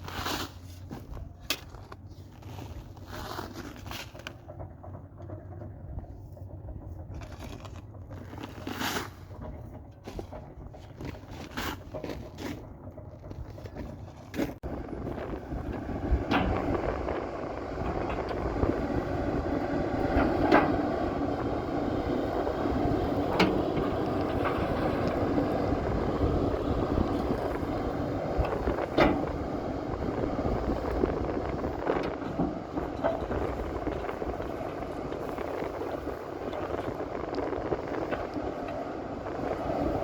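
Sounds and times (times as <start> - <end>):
excavator running: 0.0 - 40.0
wind on microphone: 14.6 - 40.0
machine knocks and clanks: 15.0 - 37.0.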